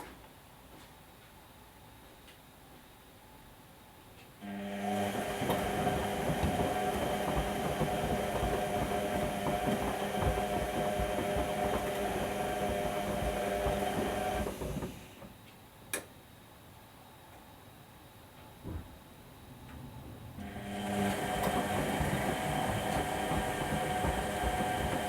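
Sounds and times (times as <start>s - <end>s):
washing machine running: 4.4s - 15.4s, 19.4s - 25.0s.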